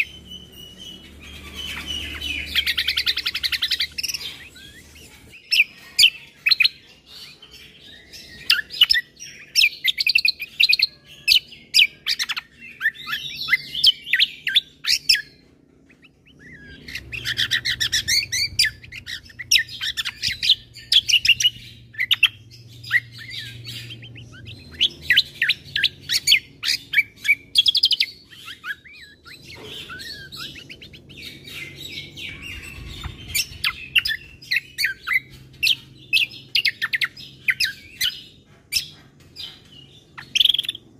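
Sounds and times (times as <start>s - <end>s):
songbird chirping and trilling: 0.0s - 40.9s.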